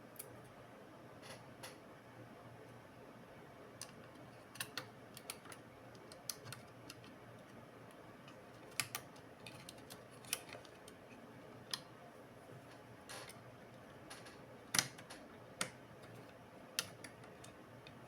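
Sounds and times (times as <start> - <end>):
laptop parts and tools clicking: 3.8 - 7.6, 8.3 - 11.9, 14.1 - 18.0.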